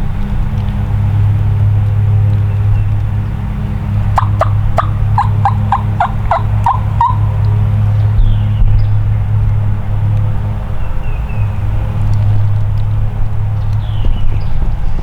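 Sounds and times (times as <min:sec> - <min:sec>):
turkey yelps: 0:04.2 - 0:07.4.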